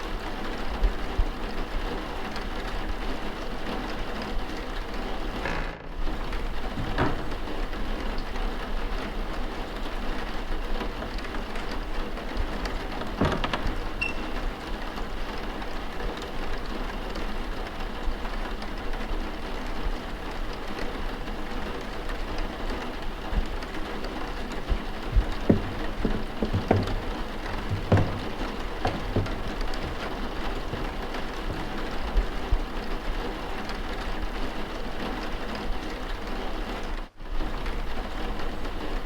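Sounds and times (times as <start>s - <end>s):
soft knocks: 5.5s - 8.6s, 10.9s - 14.6s, 23.4s - 32.7s.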